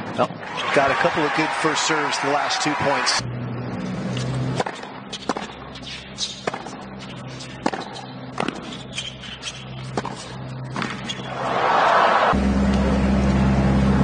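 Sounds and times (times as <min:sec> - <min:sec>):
tennis racket hitting ball: 0:04.1 - 0:11.4
steady low hum: 0:12.4 - 0:14.0.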